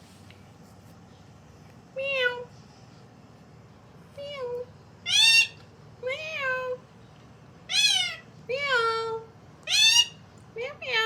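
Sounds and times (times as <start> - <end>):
parrot imitating cat meow: 5.0 - 6.8, 7.7 - 8.3, 9.7 - 10.2.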